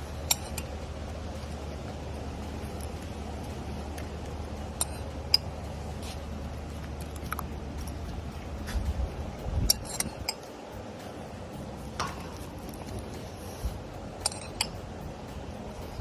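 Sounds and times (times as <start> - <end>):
low room noise: 0.0 - 16.0
dishes or utensils clinking: 14.2 - 14.8.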